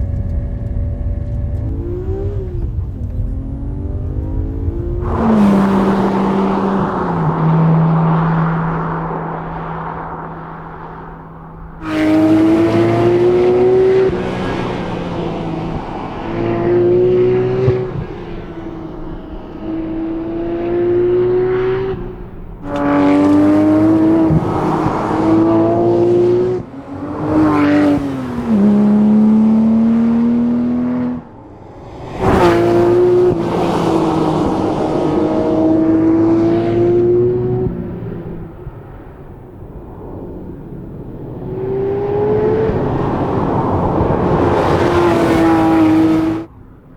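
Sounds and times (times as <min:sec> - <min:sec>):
car engine revving hard: 0:00.7 - 0:38.8, 0:40.5 - 0:46.5.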